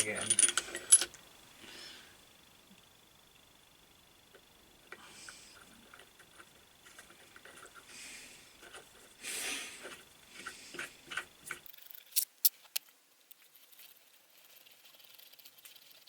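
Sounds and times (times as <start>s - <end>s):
metal parts scraping and ticking: 0.0s - 1.2s, 4.3s - 9.2s, 9.8s - 16.0s.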